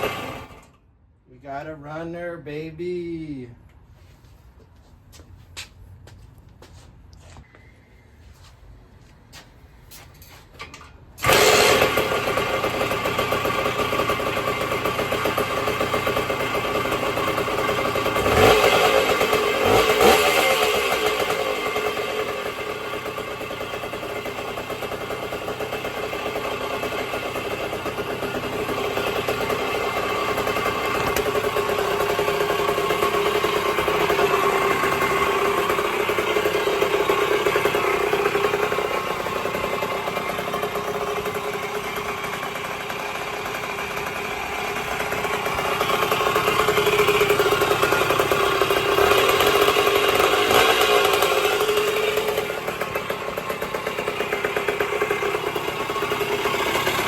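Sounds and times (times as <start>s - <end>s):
engine revving: 0.0s - 0.7s, 11.2s - 57.0s
engine idling: 0.0s - 0.9s, 10.7s - 57.0s
two-stroke engine starting: 0.0s - 0.9s, 10.6s - 57.0s.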